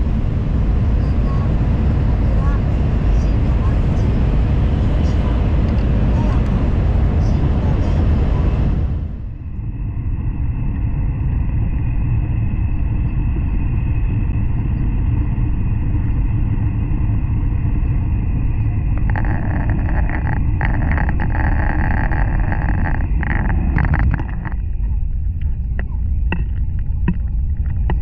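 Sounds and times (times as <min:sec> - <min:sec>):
train low rumble: 0:00.0 - 0:28.0.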